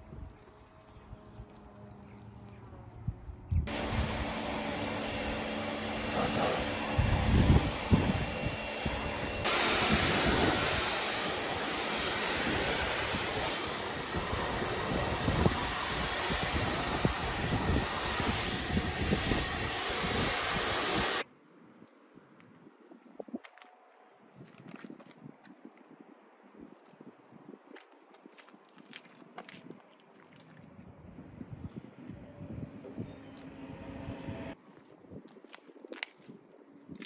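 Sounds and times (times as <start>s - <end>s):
pressure washer spraying: 3.7s - 21.2s.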